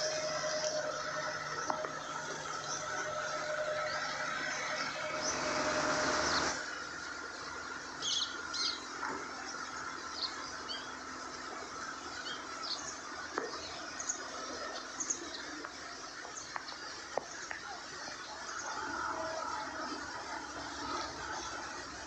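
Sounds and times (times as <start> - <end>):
steady outdoor hiss: 0.0 - 22.0
small birds chirping: 7.8 - 19.4.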